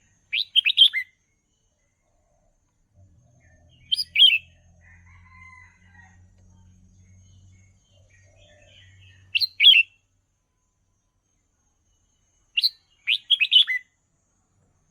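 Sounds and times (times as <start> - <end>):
bird warbling whistled song: 0.3 - 1.1, 3.8 - 4.5, 9.2 - 10.0, 12.6 - 13.8.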